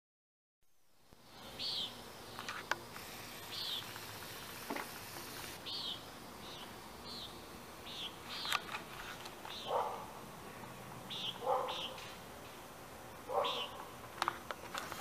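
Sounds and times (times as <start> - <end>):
background hiss: 0.6 - 15.0
bird chirping: 1.5 - 2.6, 3.4 - 4.1, 5.6 - 8.7, 9.5 - 10.0, 11.1 - 12.2, 13.3 - 13.9.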